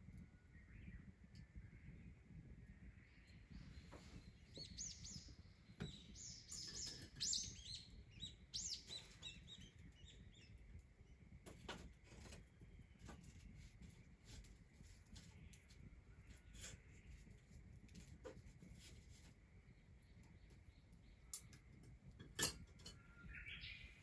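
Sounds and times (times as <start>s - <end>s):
small bird chirping: 0.1s - 11.2s, 22.6s - 24.0s.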